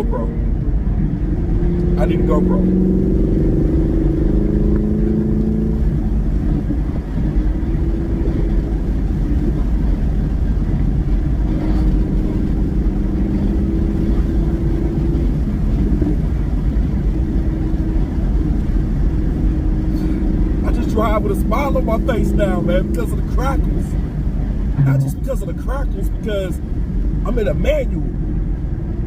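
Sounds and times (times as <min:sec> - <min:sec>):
car engine and exhaust droning: 0:00.0 - 0:29.0
road rumble: 0:00.0 - 0:29.0.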